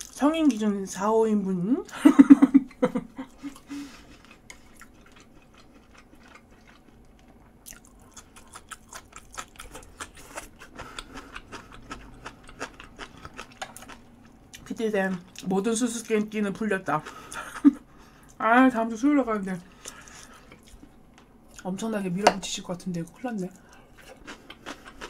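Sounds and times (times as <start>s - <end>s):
chewing crunches and mouth clicks: 3.3s - 16.2s, 19.8s - 21.7s, 23.0s - 25.0s.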